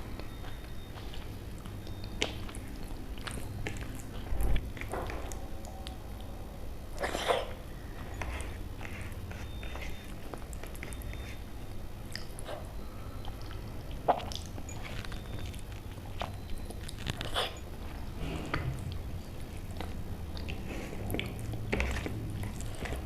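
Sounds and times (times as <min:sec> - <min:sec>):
low steady hum: 0:00.0 - 0:23.0
person chewing: 0:00.0 - 0:23.0
bites and mouth smacks: 0:00.2 - 0:06.0, 0:12.1 - 0:23.0.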